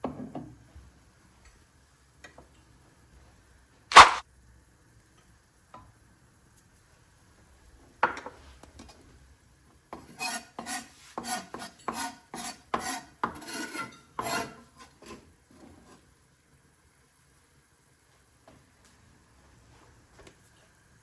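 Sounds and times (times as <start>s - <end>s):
sharp knock: 3.9s - 4.2s
kitchen utensil scraping: 10.0s - 16.0s.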